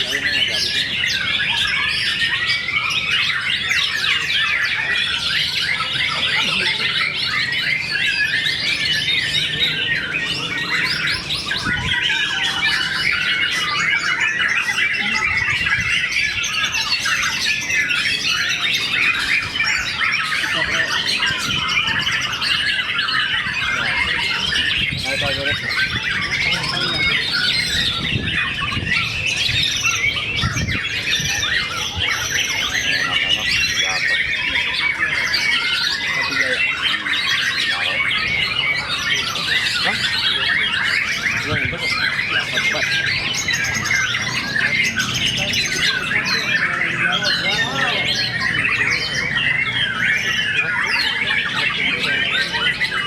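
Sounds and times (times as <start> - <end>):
songbirds chorus: 0.0 - 53.0.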